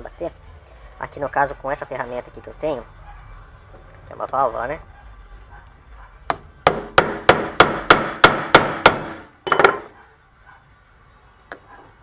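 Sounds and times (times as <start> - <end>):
hammer striking metal tool: 6.3 - 9.9.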